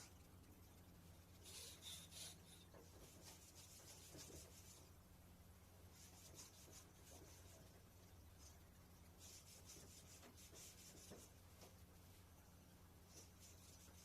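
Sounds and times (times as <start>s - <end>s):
steady low hum: 0.0s - 14.0s
rubbing and scraping strokes: 1.4s - 4.9s, 5.9s - 11.8s, 13.0s - 14.0s.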